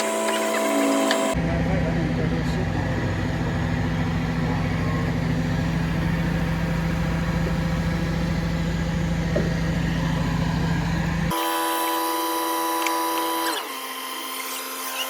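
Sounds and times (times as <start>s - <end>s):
truck engine idling: 0.0s - 11.3s.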